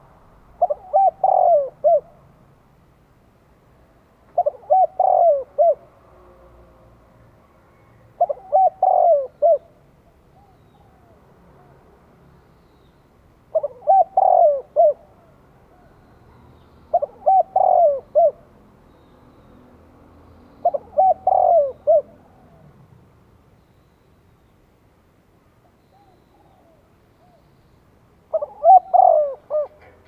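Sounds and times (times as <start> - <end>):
dove cooing: 0.6 - 2.2, 4.3 - 6.0, 7.8 - 9.8, 13.5 - 18.5, 20.6 - 22.8, 28.3 - 30.0.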